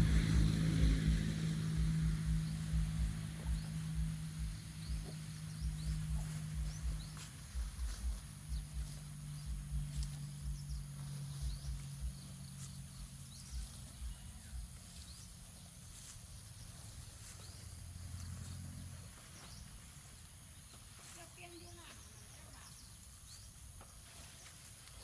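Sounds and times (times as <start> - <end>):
soft low thuds: 0.0 - 18.5
high insect-like whine: 0.0 - 20.2.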